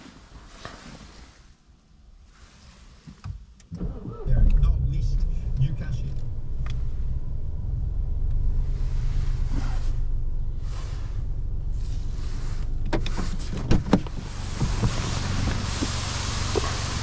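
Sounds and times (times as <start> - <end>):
car engine idling: 3.8 - 17.0.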